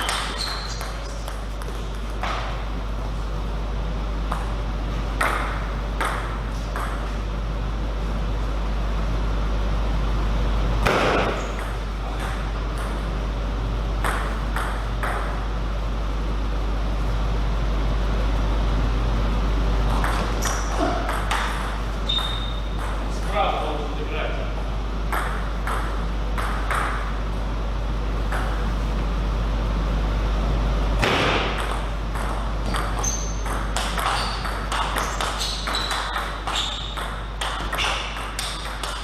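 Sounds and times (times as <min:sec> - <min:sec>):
table tennis ball pinging: 0:00.0 - 0:02.6, 0:05.2 - 0:07.1, 0:14.0 - 0:15.5, 0:19.9 - 0:23.2, 0:25.1 - 0:27.1, 0:28.3 - 0:28.7, 0:31.3 - 0:39.0
steady low hum: 0:00.0 - 0:39.0.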